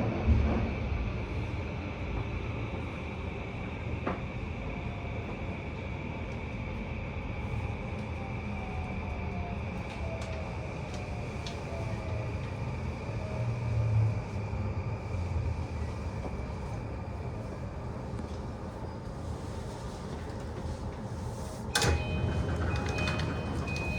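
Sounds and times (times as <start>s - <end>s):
low rumble: 0.0s - 4.2s
wheels rumbling on track: 0.0s - 23.9s
inverter and traction motor whine: 21.7s - 23.9s.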